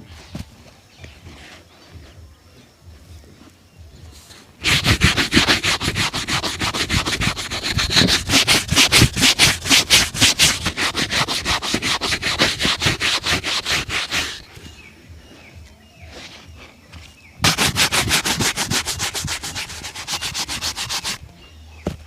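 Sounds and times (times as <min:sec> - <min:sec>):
leather shoe being buffed: 0:04.6 - 0:14.5, 0:17.4 - 0:21.2.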